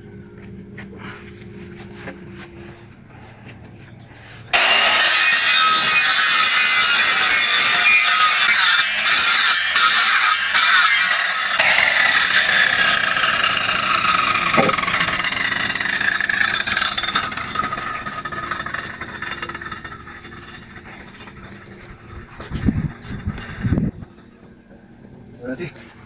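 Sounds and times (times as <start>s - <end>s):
power tool motor spinning down: 10.4s - 25.2s.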